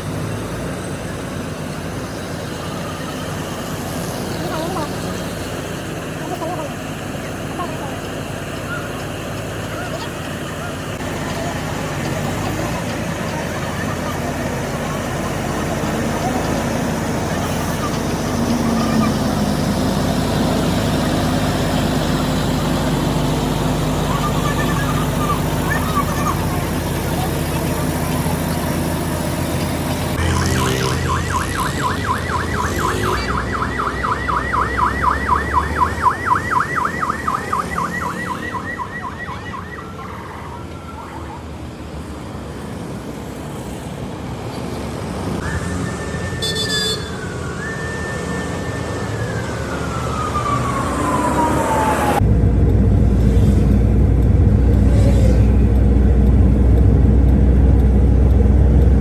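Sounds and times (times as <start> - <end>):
low engine rumble: 0.0 - 44.5, 45.3 - 59.0
electronic siren: 30.1 - 41.6, 45.4 - 52.2.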